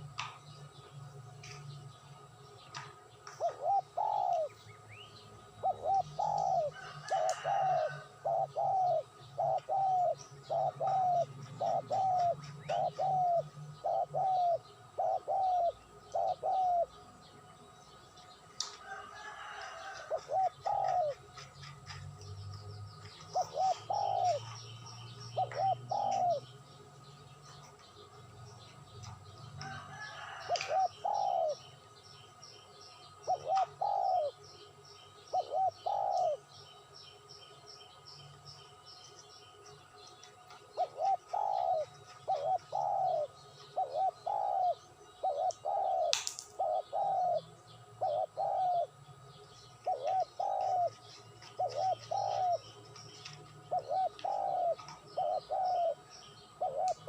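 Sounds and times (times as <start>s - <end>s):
steady low hum: 0.0s - 18.8s, 20.0s - 29.9s
bird calling: 2.7s - 17.1s, 18.9s - 22.0s, 23.1s - 26.6s, 33.2s - 34.5s, 40.2s - 49.0s, 49.8s - 57.0s.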